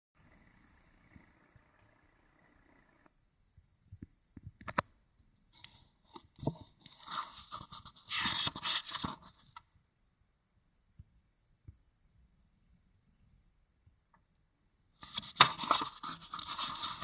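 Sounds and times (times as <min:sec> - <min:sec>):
crinkling and rustling: 0:05.6 - 0:09.6, 0:15.0 - 0:17.0.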